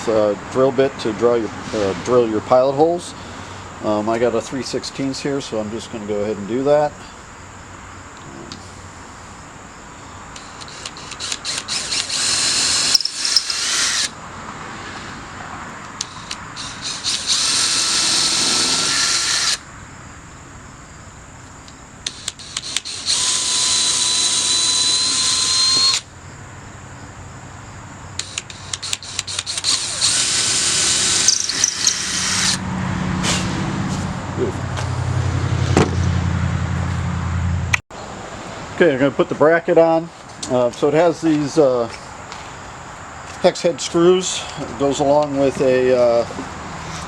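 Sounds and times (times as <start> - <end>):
power drill boring into wood: 10.4 - 14.1, 16.0 - 19.6, 22.1 - 26.0, 28.2 - 32.6.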